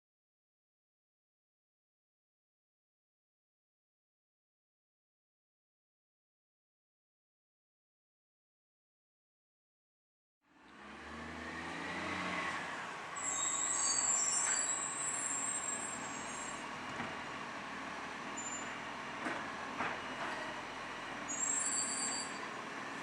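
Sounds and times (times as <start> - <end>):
recycling truck running: 10.5 - 23.0
high-pitched squeals: 13.2 - 16.7, 18.4 - 18.8, 21.3 - 22.6.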